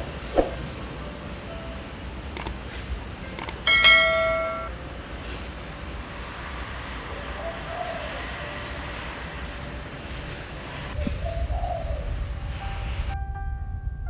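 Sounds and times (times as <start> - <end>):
background hum: 0.0 - 14.0
light clicks: 2.3 - 3.6
ringing metallic strike: 3.6 - 4.9.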